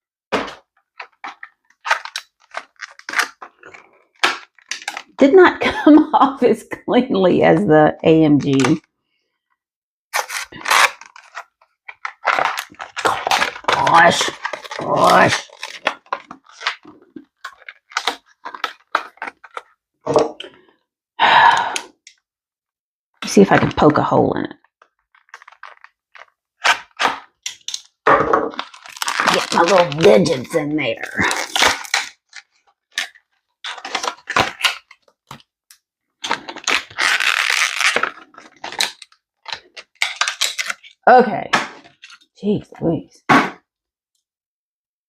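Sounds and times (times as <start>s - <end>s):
plastic packaging crinkling: 0.3s - 5.2s, 10.2s - 19.8s, 24.8s - 35.5s, 36.2s - 41.0s, 41.7s - 42.3s
cardboard tearing rip: 10.2s - 19.7s, 26.6s - 27.4s, 28.5s - 35.4s, 36.2s - 40.9s.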